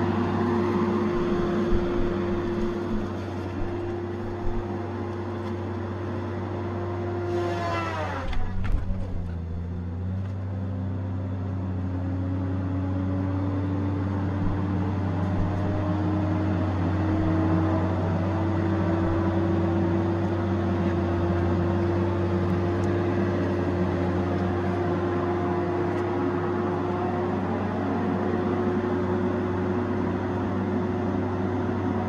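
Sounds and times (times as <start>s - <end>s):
heavy machine engine hum: 0.0s - 32.0s
whining tone rising in pitch: 7.2s - 9.8s.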